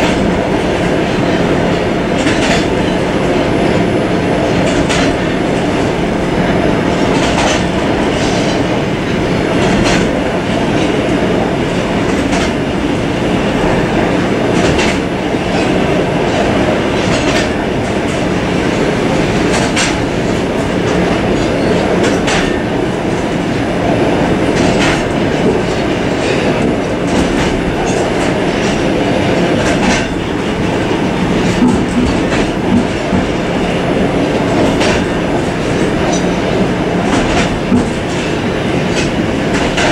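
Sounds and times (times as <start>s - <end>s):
train wheels rumbling on rails: 0.0s - 39.9s
wheels clicking over rail joints: 36.0s - 39.9s.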